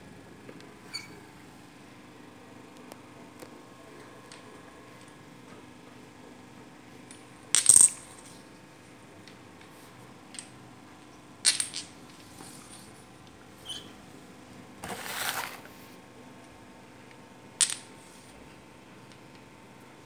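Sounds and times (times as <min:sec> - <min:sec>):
domino tiles sliding: 0:14.8 - 0:15.8.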